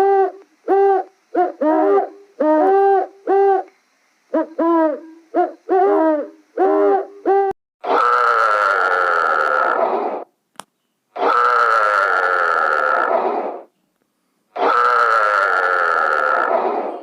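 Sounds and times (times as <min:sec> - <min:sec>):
animal hooting calls: 0:04.4 - 0:10.3, 0:11.2 - 0:13.7, 0:14.6 - 0:17.0
long harsh animal cry: 0:07.8 - 0:10.3, 0:11.2 - 0:13.7, 0:14.6 - 0:17.0.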